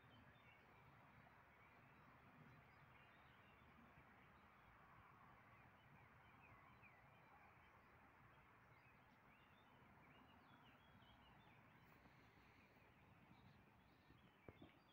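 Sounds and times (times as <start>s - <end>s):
songbirds chirping: 8.8s - 14.9s.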